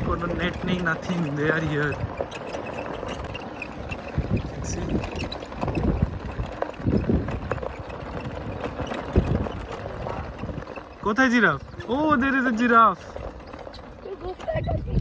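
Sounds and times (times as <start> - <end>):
low thumps and bumps: 0.0 - 15.0
vehicle rumbling over rough track: 0.0 - 15.0.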